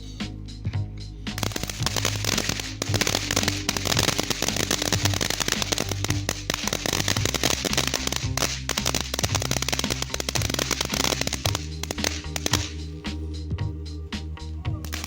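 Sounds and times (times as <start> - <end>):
music with steady beat: 0.0 - 15.0
fireworks crackling: 1.3 - 13.0.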